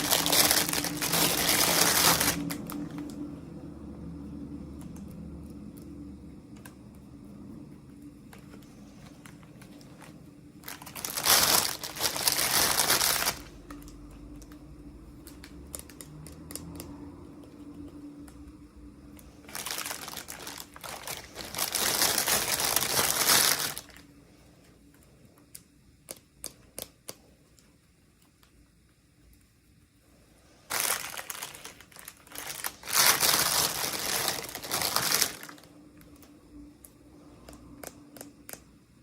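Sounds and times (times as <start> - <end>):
wrapper crinkling: 0.0 - 3.3, 8.6 - 14.5, 19.2 - 24.1, 30.6 - 36.3.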